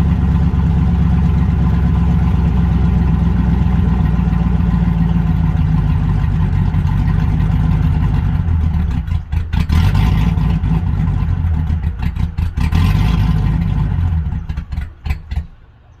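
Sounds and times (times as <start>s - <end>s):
truck engine running and revving: 0.0s - 16.0s.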